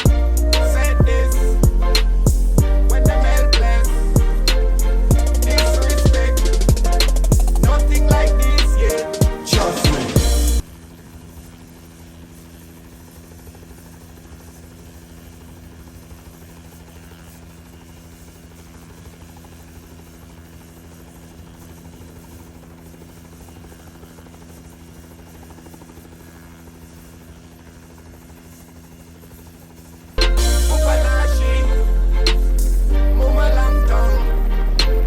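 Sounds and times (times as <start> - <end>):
helicopter hum: 0.0 - 35.0.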